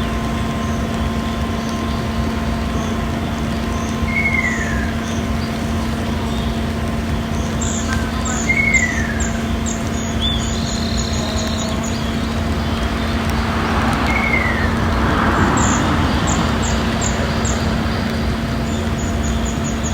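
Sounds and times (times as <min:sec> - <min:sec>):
steady low drone: 0:00.0 - 0:19.9.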